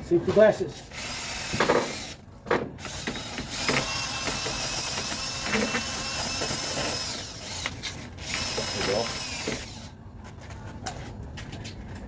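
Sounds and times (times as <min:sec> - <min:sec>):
drill wire brush on metal: 0:02.9 - 0:09.9.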